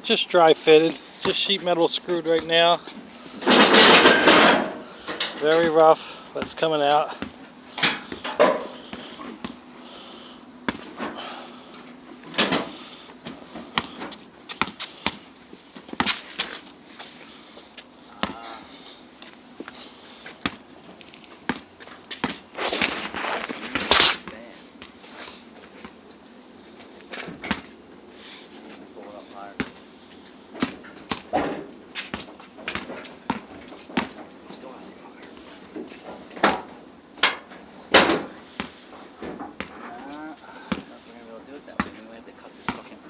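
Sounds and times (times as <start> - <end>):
rough scraping: 22.5 - 24.3.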